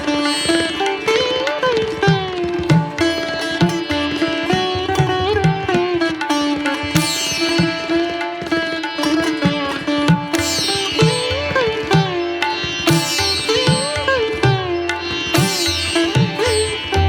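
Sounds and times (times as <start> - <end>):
sitar-like plucked melody: 0.0 - 17.0.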